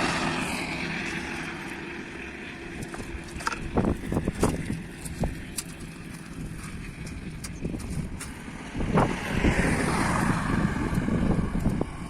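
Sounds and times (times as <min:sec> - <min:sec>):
wind rumbling on microphone: 0:02.6 - 0:12.0.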